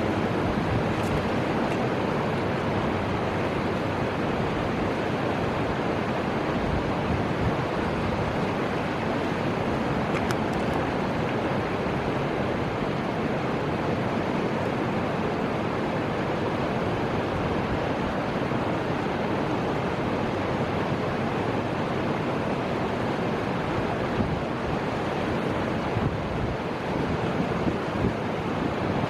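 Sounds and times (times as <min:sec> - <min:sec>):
river water rushing: 0:00.0 - 0:29.0
wind: 0:00.0 - 0:29.0.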